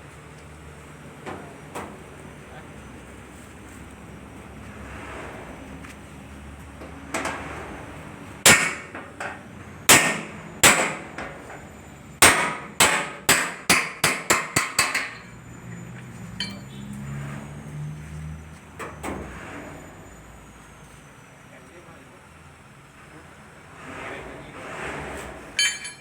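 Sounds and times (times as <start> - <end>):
hammer striking metal: 8.5 - 9.1, 9.9 - 11.1, 12.2 - 15.4, 16.4 - 16.8, 25.6 - 26.0.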